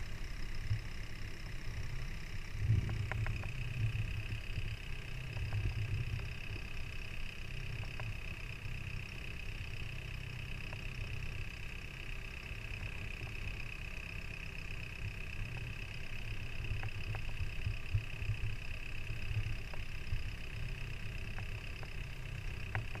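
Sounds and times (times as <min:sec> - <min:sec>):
high-pitched hum: 0:00.0 - 0:10.2
faint ticks: 0:00.0 - 0:23.0.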